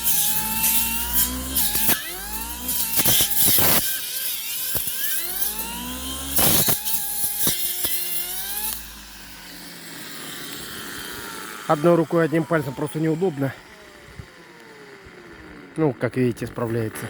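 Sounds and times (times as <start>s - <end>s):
blade striking stems: 0.0s - 9.4s
brush cutter motor whining: 0.0s - 17.0s.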